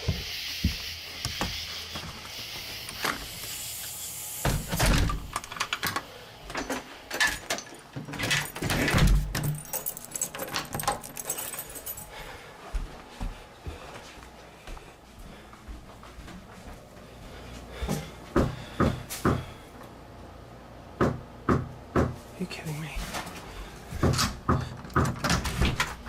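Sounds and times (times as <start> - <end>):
keys jangling: 7.2 - 12.3.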